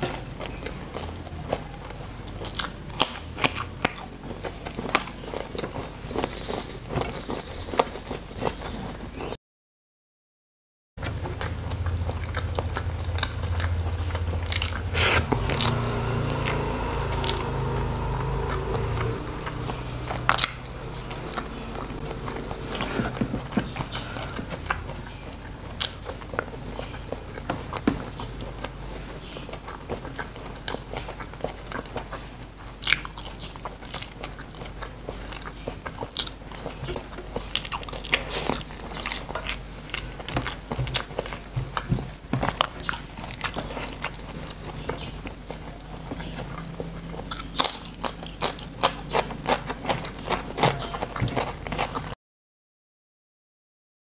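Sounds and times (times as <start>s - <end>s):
food chewing and crunching: 0.0s - 9.4s, 11.0s - 52.2s
mouth sounds: 11.4s - 26.0s.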